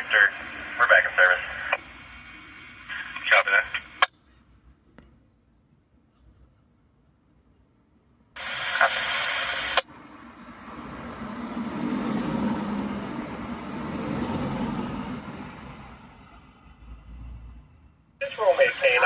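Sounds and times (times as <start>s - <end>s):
radio scanner static: 0.0s - 4.1s, 8.4s - 9.9s, 18.2s - 19.0s
steady rushing noise: 8.4s - 16.9s.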